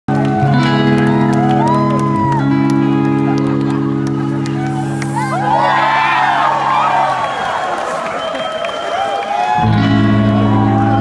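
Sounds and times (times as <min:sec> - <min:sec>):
electric guitar chords: 0:00.1 - 0:05.8, 0:09.6 - 0:11.0
crowd cheering and whooping: 0:00.1 - 0:11.0.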